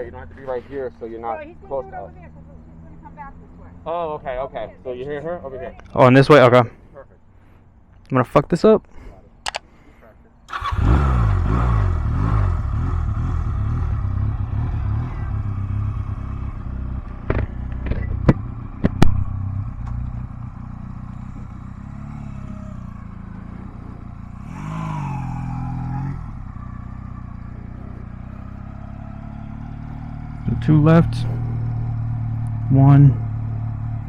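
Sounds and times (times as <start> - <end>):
motorcycle engine idling: 0.0 - 6.0, 9.2 - 34.0
sharp clicks: 9.4 - 9.7.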